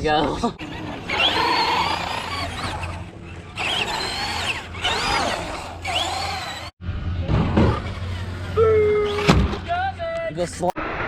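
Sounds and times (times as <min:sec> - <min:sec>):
rc car electric motors whining: 0:00.6 - 0:06.7, 0:07.7 - 0:09.3.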